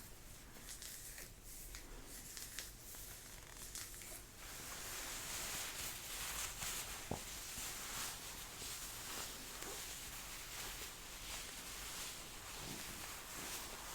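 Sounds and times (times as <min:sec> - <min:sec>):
jacket fabric rustling: 0:04.4 - 0:13.9.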